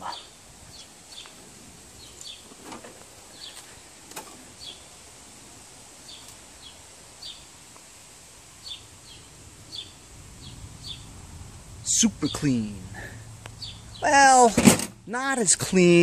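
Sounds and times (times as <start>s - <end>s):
small bird chirping: 0.0s - 1.4s, 2.0s - 2.6s, 3.3s - 3.8s, 4.5s - 5.0s, 6.0s - 7.6s, 8.6s - 11.2s, 11.9s - 14.5s.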